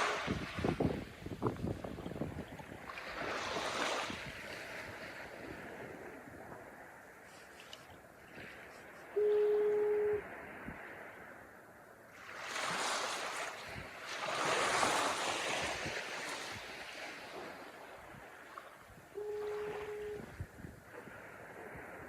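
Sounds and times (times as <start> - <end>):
wind on microphone: 0.0 - 11.5, 12.2 - 22.0
wave breaking and washing in: 0.0 - 22.0
steady horn tone: 9.1 - 10.3, 19.1 - 20.4.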